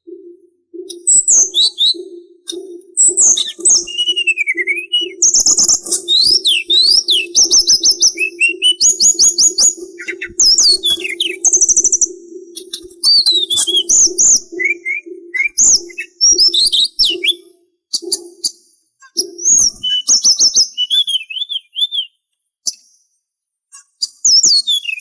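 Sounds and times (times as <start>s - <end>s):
songbird singing: 0.0s - 22.2s, 24.1s - 25.0s
steady low hum: 7.3s - 16.0s.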